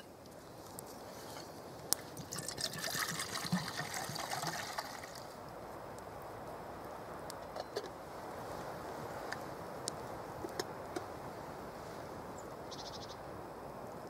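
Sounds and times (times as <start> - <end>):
water pouring and trickling: 1.3 - 5.4.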